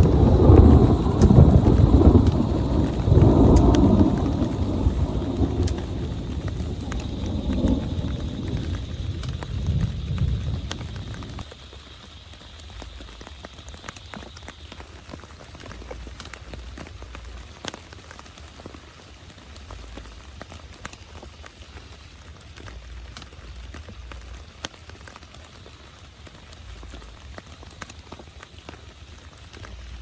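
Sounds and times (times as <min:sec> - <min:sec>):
low rumble: 0:00.0 - 0:11.5
heavy rain falling: 0:00.0 - 0:30.0
raindrops ticking close by: 0:00.0 - 0:30.0.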